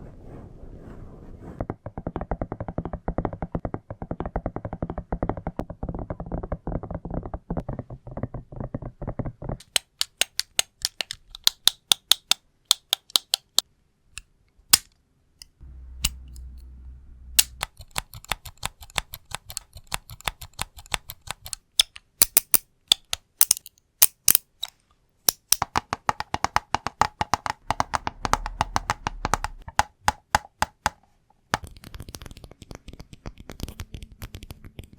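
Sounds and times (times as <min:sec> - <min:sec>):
rapid scratching on hard objects: 0:17.6 - 0:21.6
crisp tapping on hard objects: 0:25.3 - 0:31.0.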